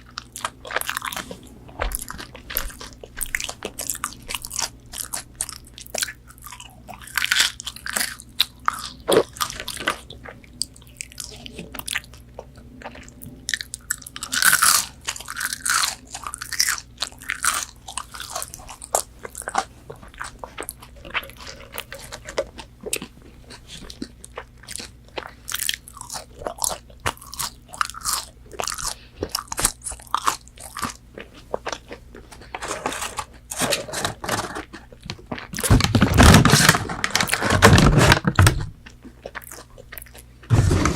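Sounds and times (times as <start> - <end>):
chewing crispy food: 0.0 - 40.8.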